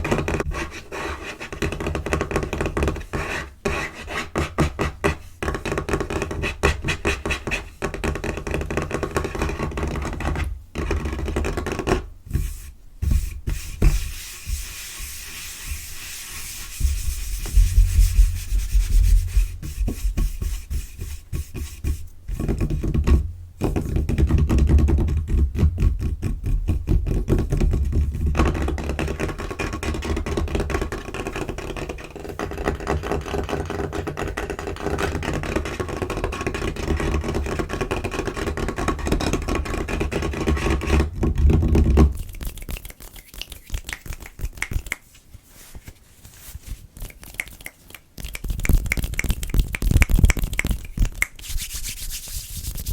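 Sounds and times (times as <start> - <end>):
fingertips tapping on table: 16.8 - 45.1, 47.0 - 52.9.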